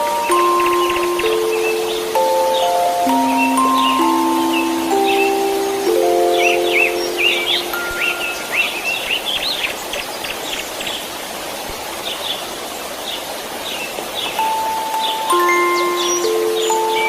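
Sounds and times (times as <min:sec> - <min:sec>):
soft held music notes: 0:00.0 - 0:09.3, 0:14.2 - 0:17.0
birds chirping: 0:00.0 - 0:17.0
white noise hiss: 0:00.0 - 0:17.0.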